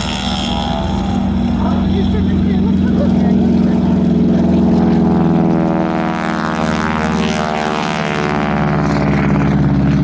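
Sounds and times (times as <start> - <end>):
propeller plane engine droning: 0.0 - 10.0.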